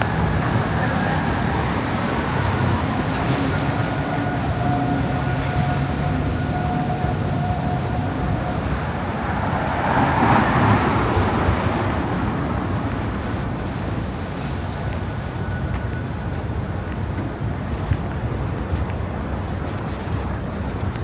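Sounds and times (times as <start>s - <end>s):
urban traffic hum: 0.0s - 21.0s
vehicle passing: 8.0s - 13.6s.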